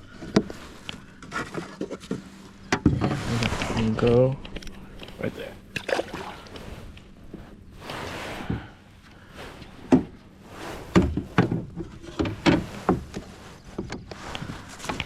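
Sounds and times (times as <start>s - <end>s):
knocks and thumps on a kayak: 9.8s - 10.2s, 10.9s - 14.2s.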